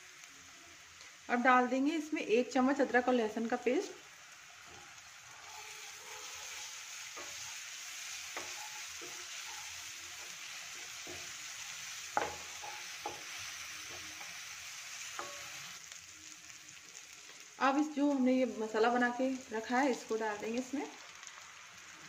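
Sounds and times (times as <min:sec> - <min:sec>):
onions sizzling in oil: 0:00.0 - 0:22.0
spatula knocking against pan: 0:12.2 - 0:13.3.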